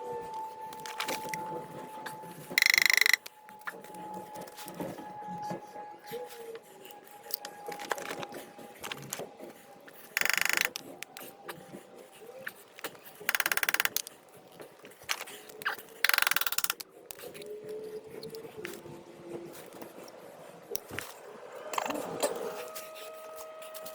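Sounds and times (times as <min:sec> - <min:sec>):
faint scraping and handling: 0:00.3 - 0:23.9
ratcheting hand tool clicking: 0:02.6 - 0:03.3, 0:10.1 - 0:11.3, 0:13.2 - 0:14.1, 0:15.1 - 0:17.4.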